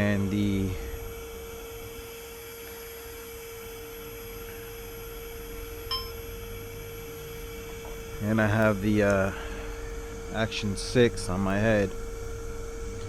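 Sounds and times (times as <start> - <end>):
steady electronic tone: 5.9 - 6.2.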